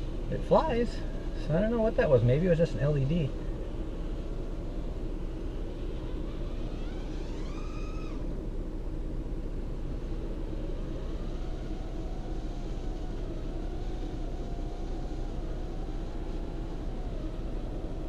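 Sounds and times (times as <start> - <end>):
quadcopter motors whining: 5.6 - 8.5, 9.9 - 18.0.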